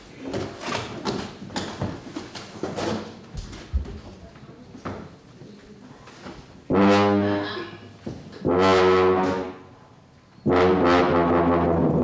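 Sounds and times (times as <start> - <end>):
low brass held notes: 6.7 - 7.8, 8.4 - 12.0.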